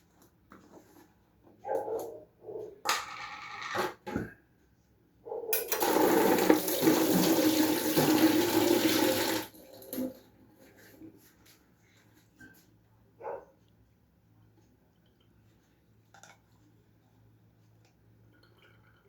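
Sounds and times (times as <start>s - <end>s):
water running from a tap: 5.7s - 10.0s.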